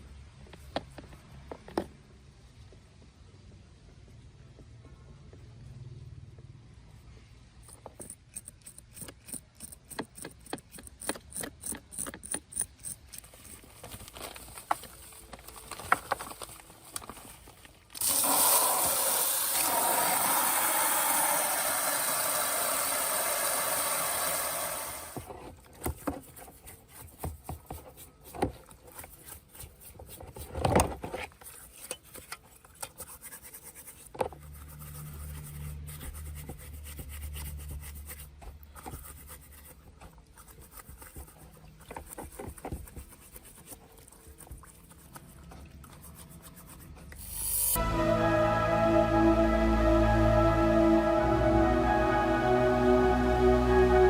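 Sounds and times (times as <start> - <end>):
low hum: 47.8 - 54.0.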